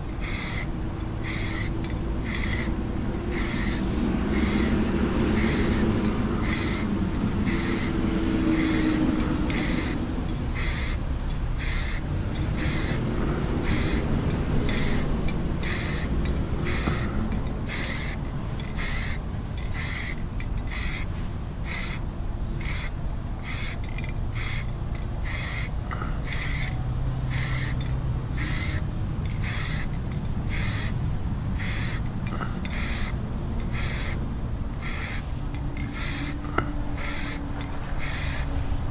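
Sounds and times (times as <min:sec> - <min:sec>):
paint brush strokes hissing rasp: 0:00.0 - 0:22.0, 0:22.6 - 0:31.0, 0:31.6 - 0:34.2, 0:34.8 - 0:38.5.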